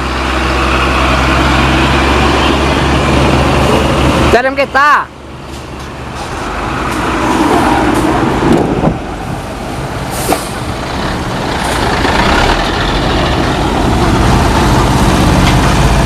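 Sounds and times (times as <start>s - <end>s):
truck diesel engine running: 0.0s - 4.3s, 8.0s - 16.0s
air brakes hiss: 10.1s - 10.6s.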